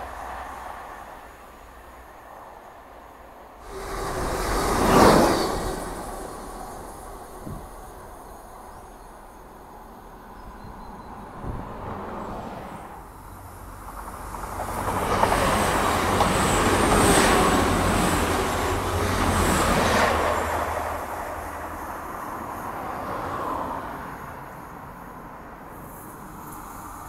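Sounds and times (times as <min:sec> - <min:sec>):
train engine and wheels passing: 0:00.0 - 0:27.0
high wheel squeal: 0:03.6 - 0:09.4.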